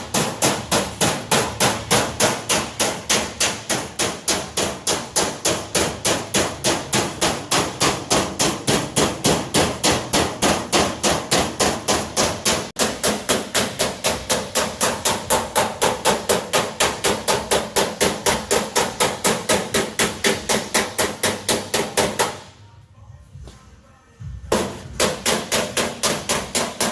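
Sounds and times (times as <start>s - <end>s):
hammer striking sheet metal: 0.0s - 22.5s, 24.5s - 26.9s.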